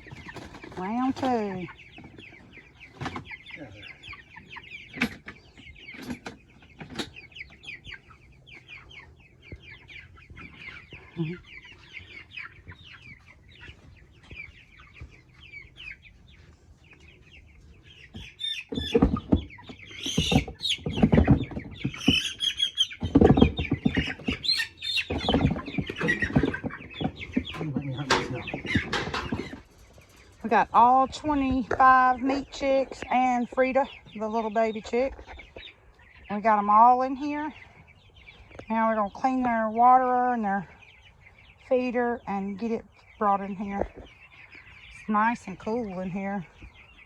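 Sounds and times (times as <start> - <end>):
chicks peeping: 0.0 - 47.0
rustling and knocking: 18.2 - 29.7.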